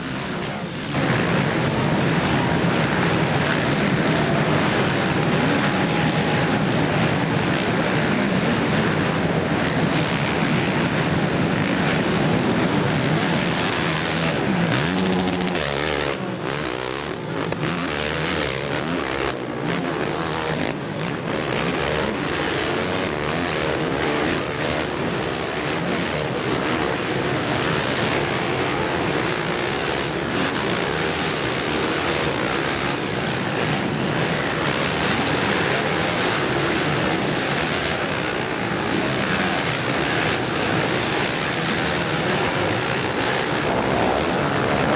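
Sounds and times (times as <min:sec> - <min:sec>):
motocross bike engines revving: 0:00.0 - 0:44.9.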